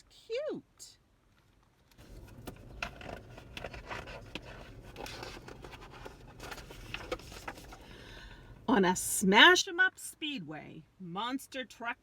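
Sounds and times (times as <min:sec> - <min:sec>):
low steady rumble: 0:02.0 - 0:11.1.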